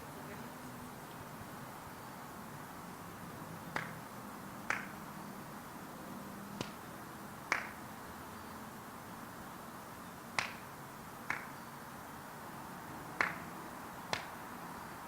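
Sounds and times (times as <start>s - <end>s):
finger snaps: 3.7s - 4.0s, 4.7s - 4.9s, 6.6s - 6.8s, 7.5s - 7.8s, 10.4s - 10.6s, 11.3s - 11.5s, 13.2s - 13.4s, 14.1s - 14.4s.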